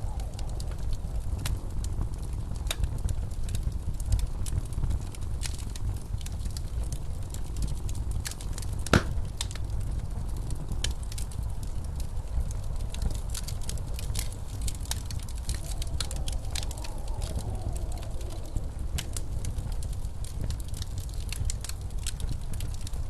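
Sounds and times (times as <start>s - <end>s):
blizzard wind rumbling: 0.0s - 23.0s
wood fire crackling: 0.0s - 23.0s.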